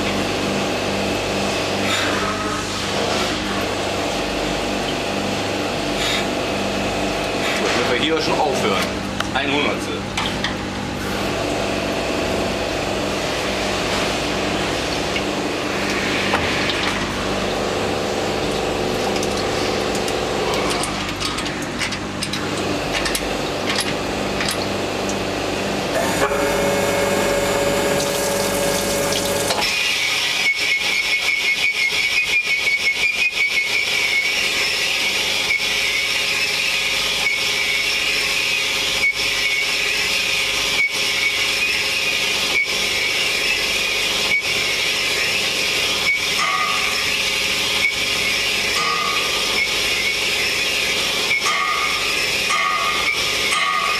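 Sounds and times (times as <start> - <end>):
metal-cutting machine tool: 13.1 - 53.9.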